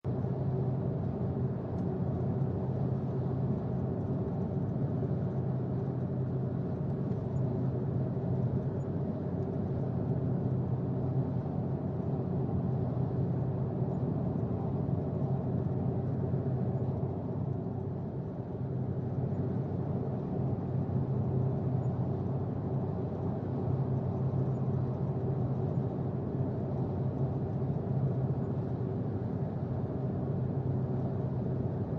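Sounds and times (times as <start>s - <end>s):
constant low hum: 0.0s - 31.9s
road and engine rumble in vehicle: 0.1s - 31.9s.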